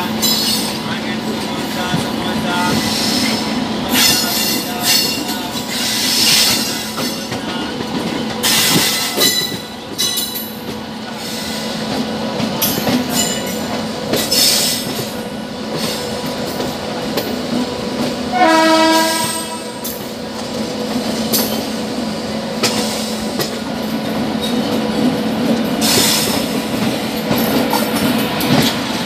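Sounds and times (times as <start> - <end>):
train wheels rumbling: 0.0 - 29.0
locomotive horn: 18.3 - 20.0.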